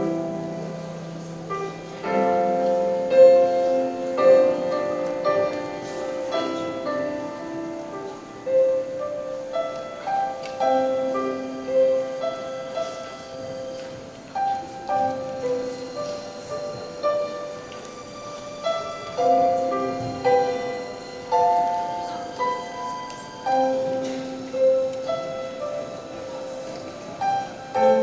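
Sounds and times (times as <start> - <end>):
slow piano music: 0.0 - 28.0.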